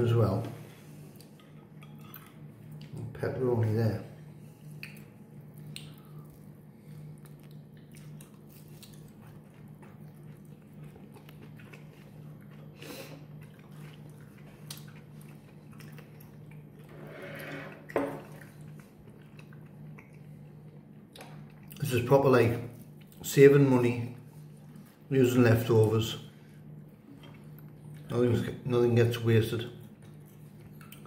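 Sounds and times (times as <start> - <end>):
steady low hum: 0.0 - 31.0
man chewing pizza: 4.3 - 17.0, 17.8 - 23.3, 26.6 - 28.4, 29.7 - 31.0.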